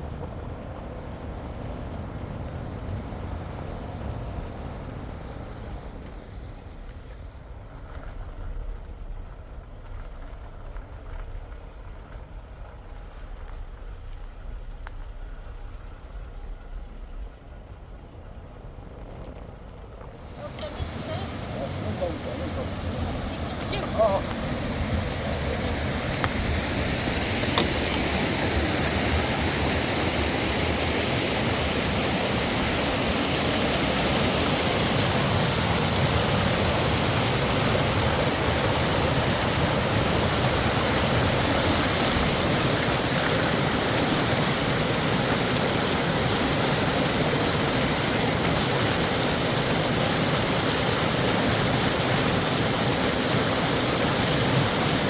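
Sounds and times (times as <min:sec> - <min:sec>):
steady rushing noise: 0:00.0 - 0:55.0.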